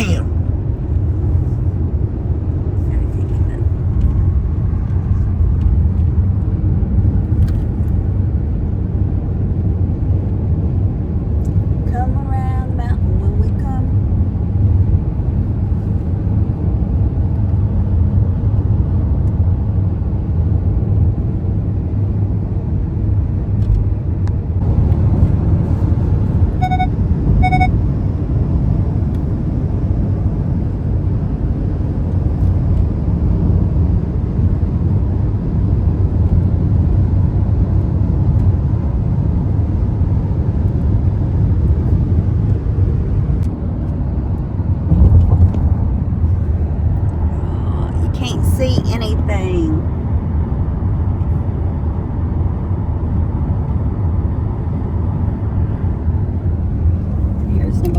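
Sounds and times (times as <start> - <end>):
car road and engine rumble: 0.0 - 57.9
short high electronic beeps: 26.6 - 27.7.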